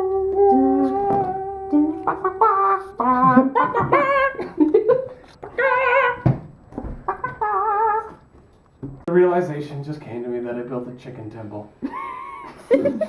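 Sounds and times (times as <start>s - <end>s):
people singing and humming: 0.0s - 4.7s.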